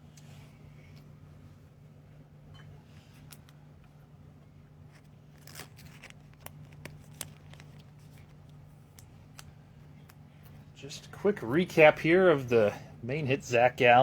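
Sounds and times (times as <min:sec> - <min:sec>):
cards clicking and rustling: 0:04.9 - 0:10.2.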